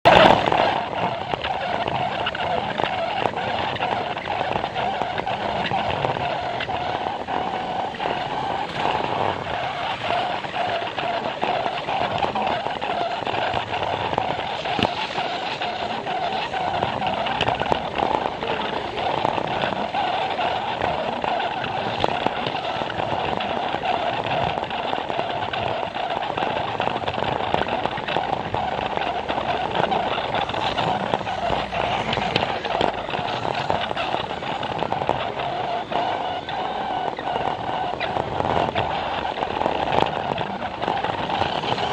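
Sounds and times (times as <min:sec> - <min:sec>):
wheels clicking over track joints: 0:00.1 - 0:41.9
toy train motor whirring: 0:26.0 - 0:41.9.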